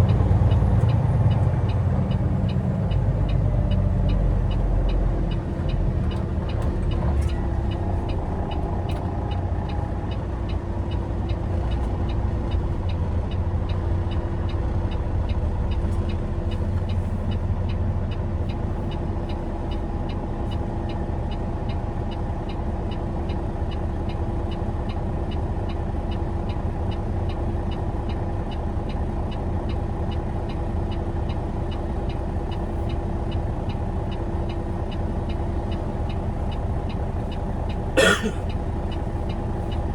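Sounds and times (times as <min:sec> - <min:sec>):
truck engine and road drone: 0:00.0 - 0:39.9
faint regular ticking: 0:07.6 - 0:17.4
constant hum: 0:31.8 - 0:39.9.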